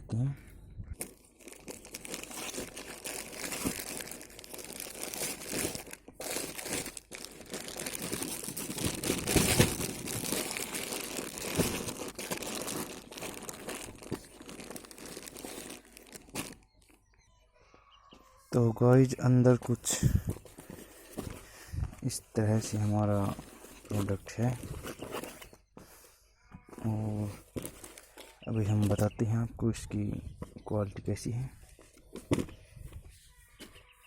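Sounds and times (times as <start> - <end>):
plastic packaging crinkling and tearing: 1.0 - 16.8.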